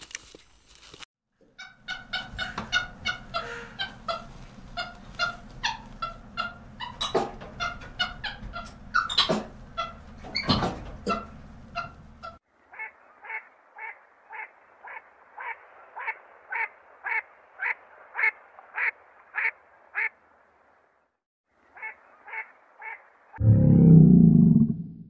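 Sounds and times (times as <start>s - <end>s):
duck calling: 1.6s - 10.0s.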